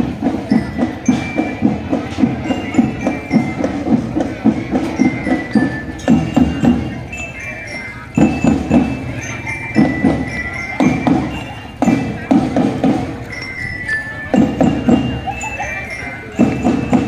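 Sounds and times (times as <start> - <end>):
bell-lyre melody: 0.0 - 17.0
marching drums: 0.0 - 17.0.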